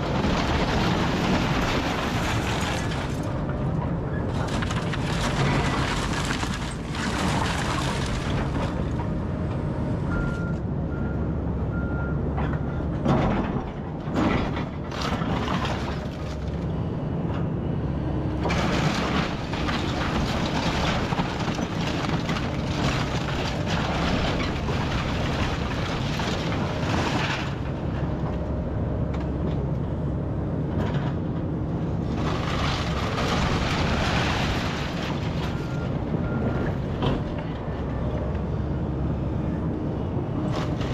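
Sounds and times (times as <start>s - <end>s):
debris crunching and breaking: 0.0s - 9.0s, 13.4s - 16.6s, 18.4s - 28.4s, 32.0s - 37.3s
excavator diesel engine running: 0.0s - 40.9s.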